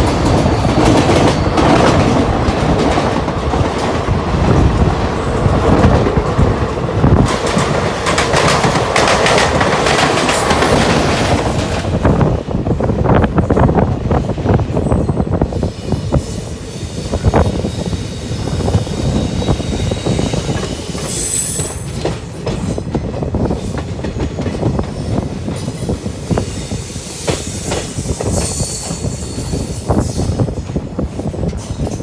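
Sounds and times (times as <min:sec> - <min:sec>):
train wheel-on-rail rumble: 0:00.0 - 0:32.0
high wheel squeal: 0:14.8 - 0:21.9, 0:26.4 - 0:30.4.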